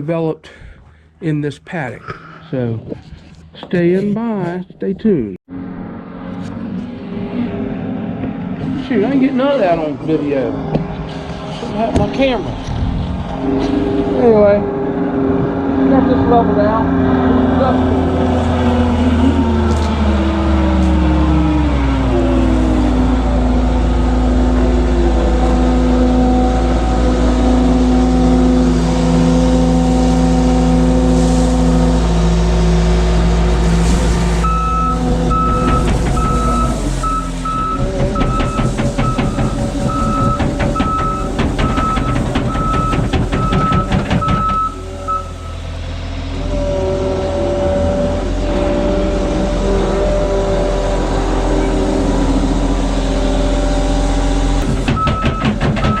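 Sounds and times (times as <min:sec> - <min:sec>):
diesel engine running: 0:05.5 - 0:56.0
rapid clatter: 0:33.5 - 0:45.7, 0:54.6 - 0:56.0
reversing alarm beeping: 0:34.4 - 0:45.6, 0:54.6 - 0:56.0.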